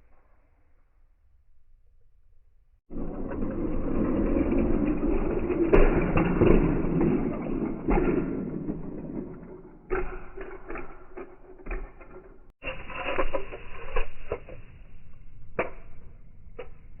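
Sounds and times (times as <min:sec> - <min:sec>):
toy cars crashing and clattering: 0:02.9 - 0:14.6.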